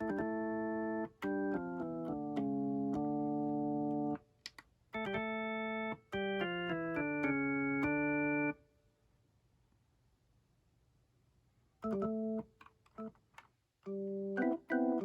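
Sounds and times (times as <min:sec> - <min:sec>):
organ-like keyboard chords: 0:00.0 - 0:04.2, 0:05.0 - 0:08.6, 0:11.8 - 0:13.1, 0:13.9 - 0:15.0.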